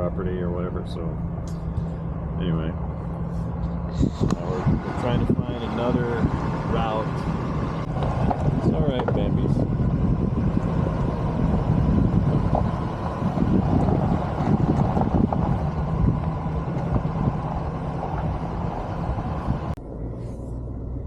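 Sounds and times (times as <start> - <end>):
low hum: 0.0 - 21.0
road rumble: 0.0 - 21.0
truck engine drone: 0.0 - 21.0.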